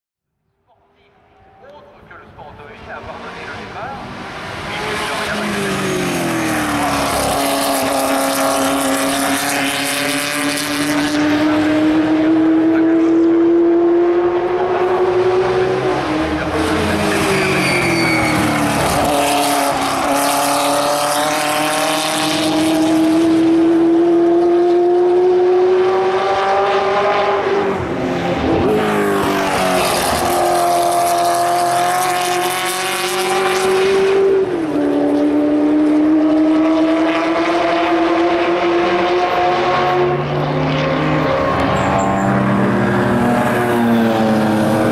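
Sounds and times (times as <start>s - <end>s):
racing car engines passing: 0.8s - 44.9s
tyres squealing: 16.9s - 19.0s.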